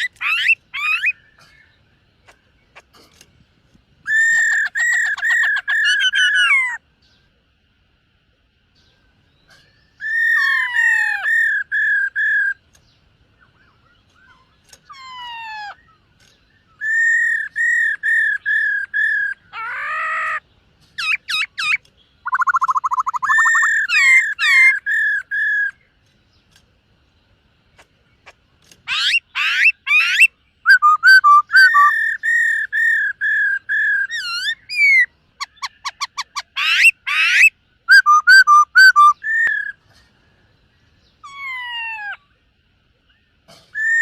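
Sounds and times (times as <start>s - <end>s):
bird singing whistled phrases: 16.6s - 19.8s, 21.0s - 25.8s, 28.9s - 39.8s, 43.8s - 44.0s.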